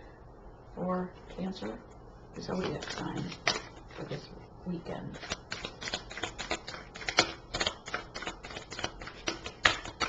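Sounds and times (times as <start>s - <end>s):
cards being shuffled by hand: 2.5s - 4.2s, 5.2s - 10.0s.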